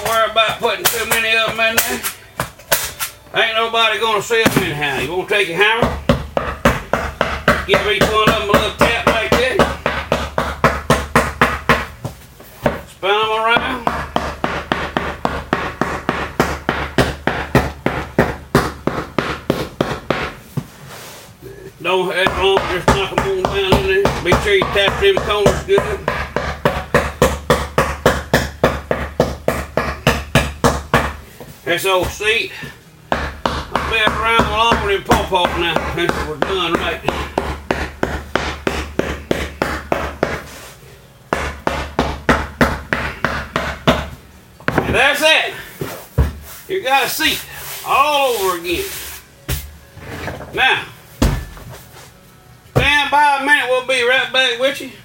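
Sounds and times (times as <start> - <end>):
hammer tapping staples: 5.8 - 11.9, 13.5 - 20.4, 22.2 - 31.2, 32.0 - 40.5, 41.3 - 45.0.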